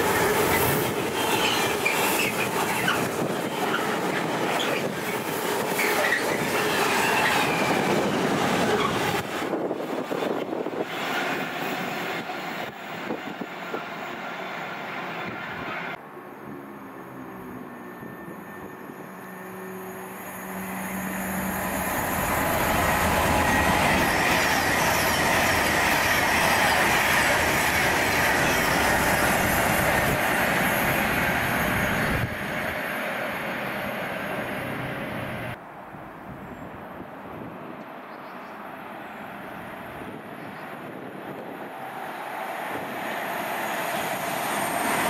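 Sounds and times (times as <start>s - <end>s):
train wheel and rail noise: 0.0s - 45.0s
high wheel squeal: 0.4s - 9.2s, 13.0s - 32.8s.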